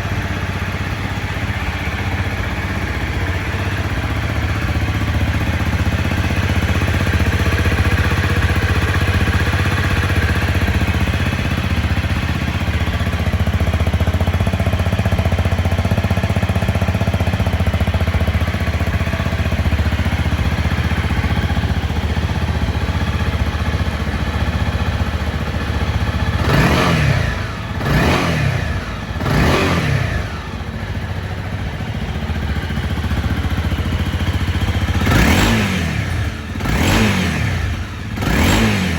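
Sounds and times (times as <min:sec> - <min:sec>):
motorcycle engine idling: 0:00.0 - 0:38.9
engine revving throttle blips: 0:26.3 - 0:31.0, 0:35.0 - 0:38.9.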